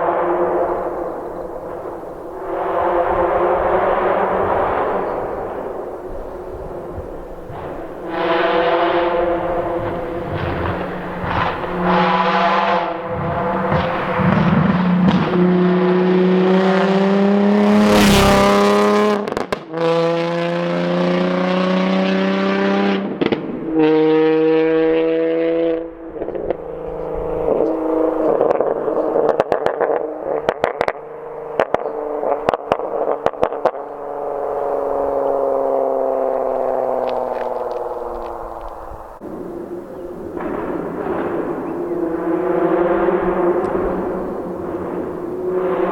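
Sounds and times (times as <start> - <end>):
car engine accelerating: 0.0 - 45.9
exhaust pops and crackles: 4.1 - 15.4, 19.2 - 19.8, 23.0 - 23.7, 26.1 - 34.4, 36.0 - 39.2, 40.3 - 45.9.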